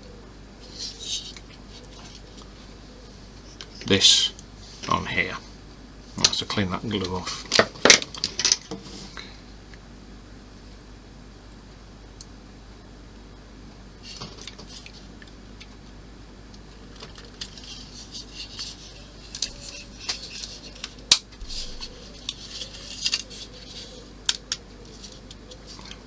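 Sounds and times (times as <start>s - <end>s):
plastic parts clicking and tapping: 17.0s - 26.0s.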